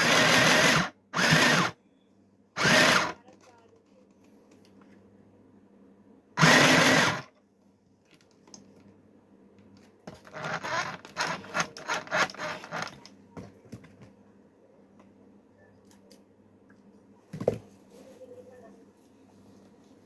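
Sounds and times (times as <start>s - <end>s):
sewing machine motor burst: 0.0s - 1.8s, 2.6s - 3.2s, 6.4s - 7.3s, 10.4s - 12.9s.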